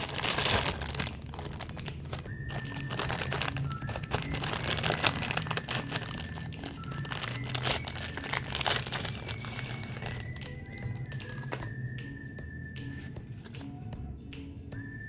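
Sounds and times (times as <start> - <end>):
snack packaging crinkling: 0.0 - 11.8.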